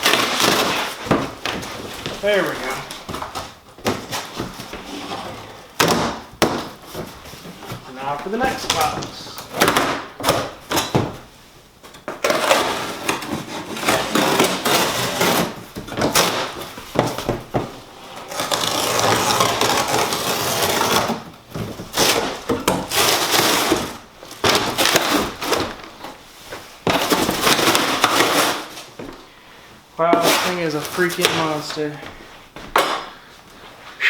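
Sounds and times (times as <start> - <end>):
cardboard box being cut and torn: 12.2 - 16.6, 18.3 - 21.2, 21.9 - 25.7.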